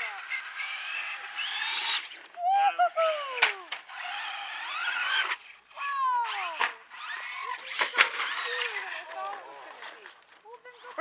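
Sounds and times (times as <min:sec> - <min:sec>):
toy truck electric motor whining: 0:00.0 - 0:02.2, 0:03.7 - 0:05.6, 0:06.2 - 0:09.4.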